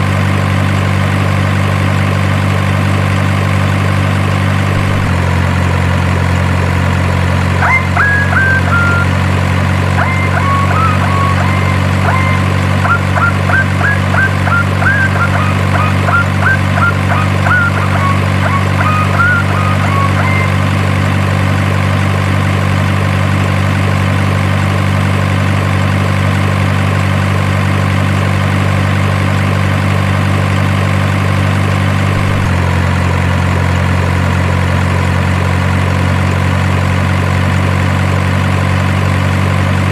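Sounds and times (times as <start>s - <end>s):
engine idling drone: 0.0s - 39.9s
short high chirps: 7.6s - 9.3s, 10.0s - 20.9s.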